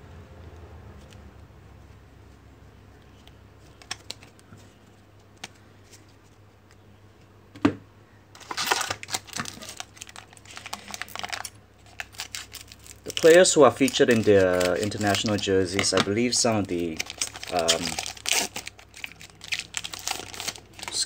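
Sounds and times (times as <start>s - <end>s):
cards snapping and rustling: 3.2s - 4.5s, 8.4s - 21.0s.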